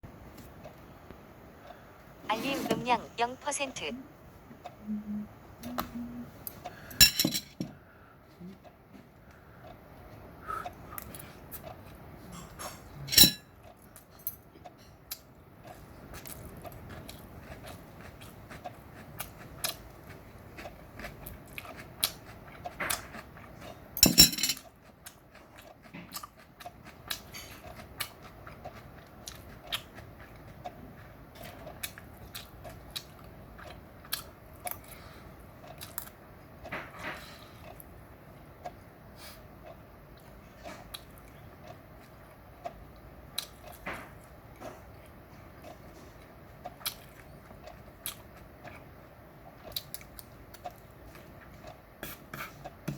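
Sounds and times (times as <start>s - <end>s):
person chewing food: 0.1s - 2.2s, 4.5s - 7.0s, 7.6s - 52.9s
cutlery clinking on dishes: 7.0s - 7.7s, 12.3s - 13.5s, 24.0s - 24.6s.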